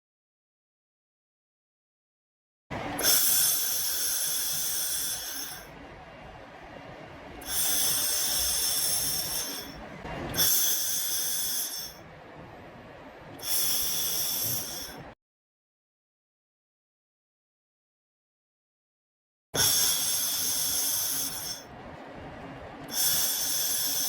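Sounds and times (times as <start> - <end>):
laser welder hiss and whine: 2.7 - 15.2, 19.6 - 24.0.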